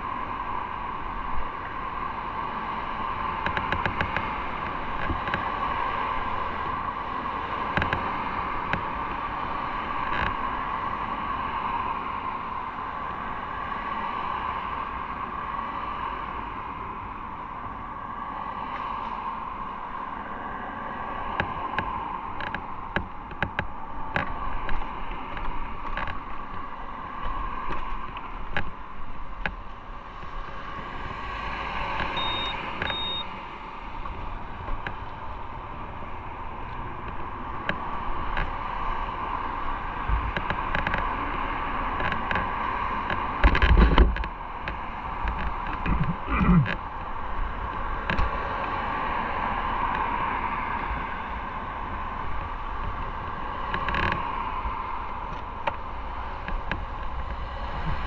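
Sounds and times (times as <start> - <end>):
wind noise: 0.0 - 58.0
motorcycle riding: 21.4 - 58.0
short high beeps: 32.2 - 33.2.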